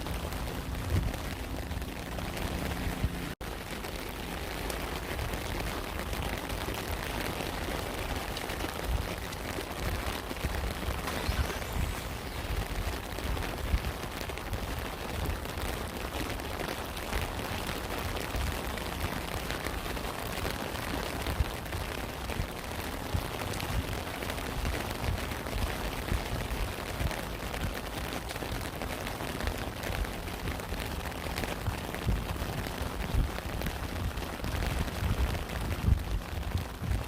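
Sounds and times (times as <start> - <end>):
low rumble: 0.0 - 3.8, 9.9 - 15.6
raindrops ticking: 0.0 - 11.2, 11.8 - 37.0
rain hiss: 0.0 - 37.0.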